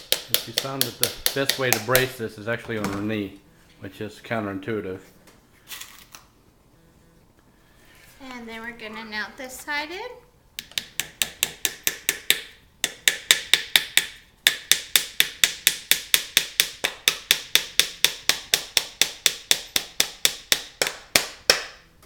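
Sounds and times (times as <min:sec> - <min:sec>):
hammer tapping nails into wood: 0:00.0 - 0:02.1, 0:10.6 - 0:21.8.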